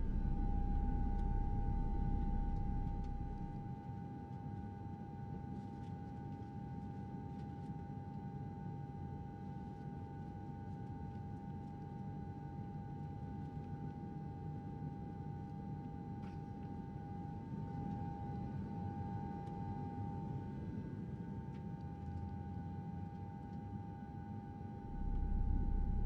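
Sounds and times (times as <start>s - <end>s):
high-pitched hum: 0.0s - 3.6s, 24.8s - 26.0s
low rumble: 0.0s - 3.7s, 24.8s - 26.0s.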